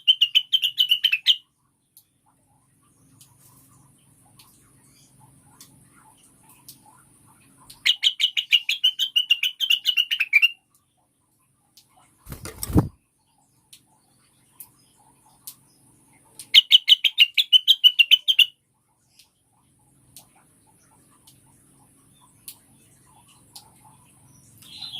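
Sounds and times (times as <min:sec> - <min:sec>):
bird chattering: 0:16.5 - 0:18.5.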